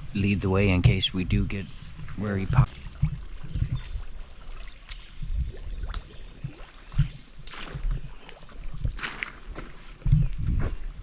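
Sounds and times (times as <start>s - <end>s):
footsteps through grass: 7.0s - 11.0s.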